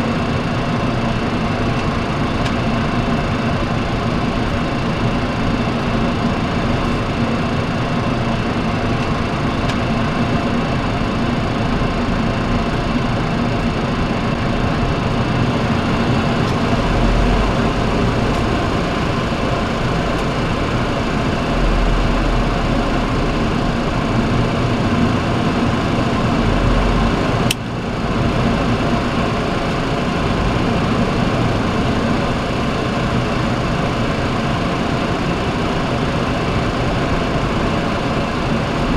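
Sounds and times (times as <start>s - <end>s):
air-conditioning fan noise: 0.0s - 38.9s
jet engines humming at idle: 0.0s - 38.9s.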